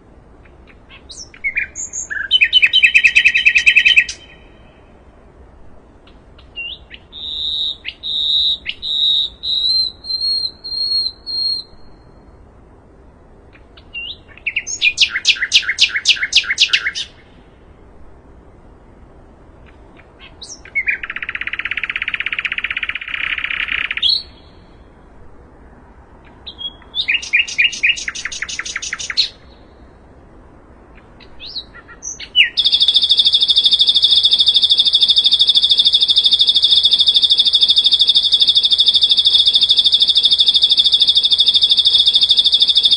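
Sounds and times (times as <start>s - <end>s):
flycatcher singing: 0.6s - 4.7s, 6.4s - 12.3s, 13.8s - 17.4s, 20.2s - 24.7s, 26.4s - 29.8s, 31.0s - 42.9s.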